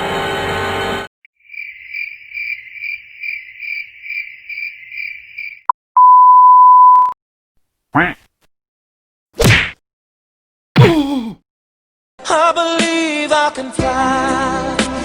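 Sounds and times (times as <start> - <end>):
cricket chirping sound effect: 1.4 - 5.7
censor beep: 6.0 - 7.2
music: 12.2 - 15.0.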